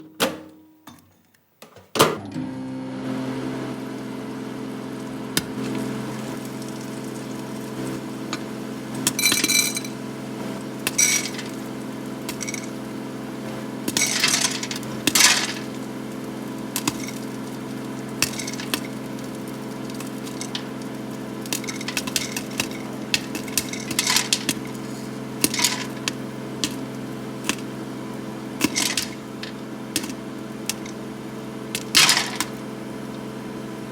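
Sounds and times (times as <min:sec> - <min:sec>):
microwave oven click: 0:01.7 - 0:02.5, 0:28.6 - 0:31.0
microwave oven humming: 0:01.9 - 0:33.9
popcorn kernels popping: 0:05.3 - 0:27.8, 0:28.5 - 0:33.3.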